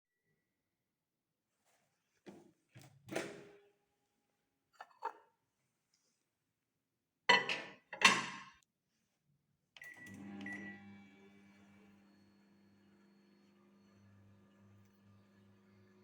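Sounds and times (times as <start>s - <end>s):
microwave oven humming: 9.8s - 16.0s.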